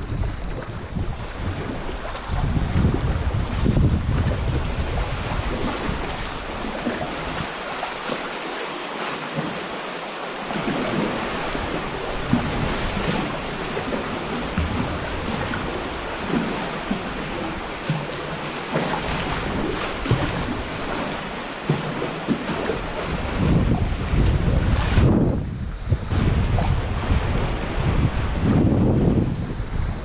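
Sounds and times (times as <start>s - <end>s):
wind buffeting microphone: 0.0s - 7.5s, 10.5s - 18.0s, 22.2s - 30.0s
sea water sloshing and lapping: 0.0s - 30.0s.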